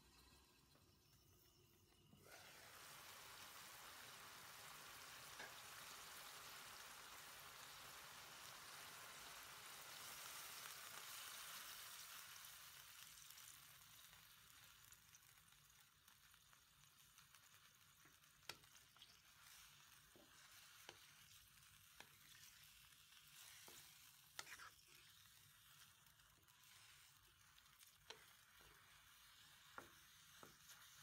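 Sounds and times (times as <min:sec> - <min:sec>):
food sizzling in a wok: 0:00.0 - 0:31.0
water poured into a pan: 0:02.2 - 0:31.0.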